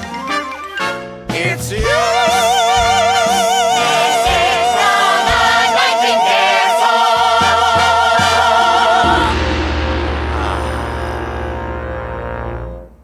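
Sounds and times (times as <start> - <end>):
orchestral accompaniment: 0.0 - 13.0
singer holding long note: 1.8 - 13.0
low held sound: 7.5 - 13.0.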